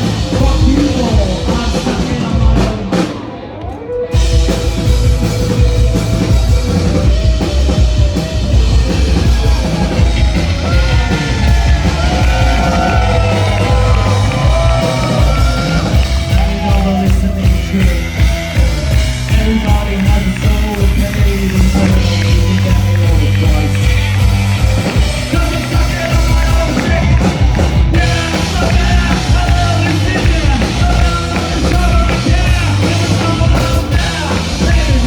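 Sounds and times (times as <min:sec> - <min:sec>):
person singing and shouting: 0:00.0 - 0:04.9, 0:06.2 - 0:35.0
live rock band playing: 0:00.0 - 0:35.0.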